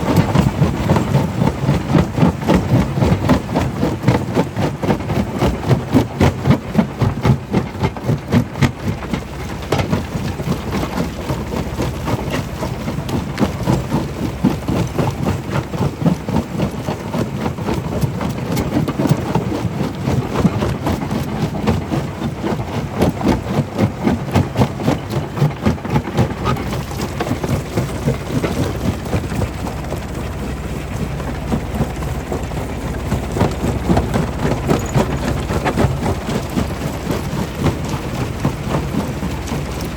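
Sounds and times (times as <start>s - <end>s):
stone crusher rumbling: 0.0s - 39.9s
rock knocking in machine: 31.5s - 39.9s.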